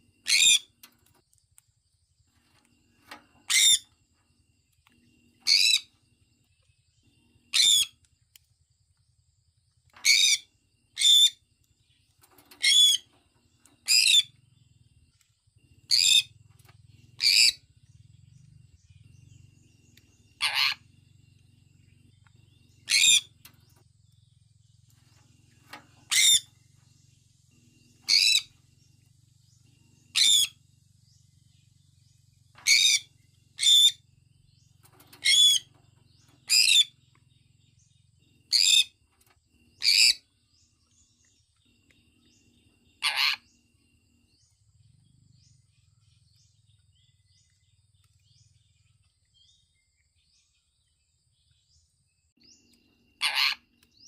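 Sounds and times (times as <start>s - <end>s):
parrot shrill calls: 0.2s - 0.7s, 7.5s - 7.9s, 12.6s - 13.0s, 20.4s - 20.8s, 22.9s - 23.3s, 26.1s - 26.5s, 28.1s - 28.5s, 30.1s - 30.6s, 32.6s - 34.0s, 35.2s - 35.7s, 43.0s - 43.4s, 53.2s - 53.6s.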